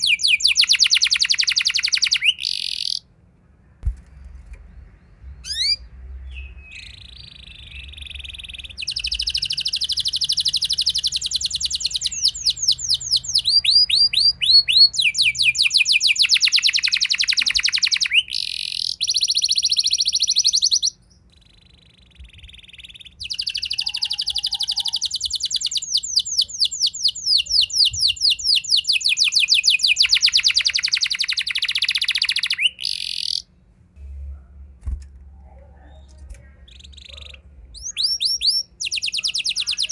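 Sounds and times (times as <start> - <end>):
canary singing trills: 0.0 - 3.1, 4.6 - 33.6, 35.4 - 39.9.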